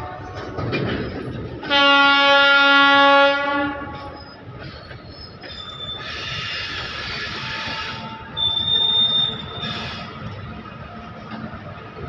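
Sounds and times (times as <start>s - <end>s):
train horn blast: 0.0s - 0.8s, 1.6s - 4.2s, 6.0s - 10.4s
train wagons rumbling past: 0.0s - 12.0s.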